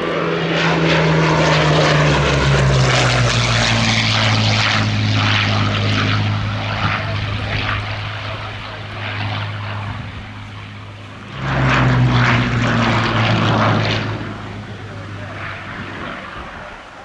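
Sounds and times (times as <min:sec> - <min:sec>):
propeller plane engine drone: 0:00.0 - 0:17.0.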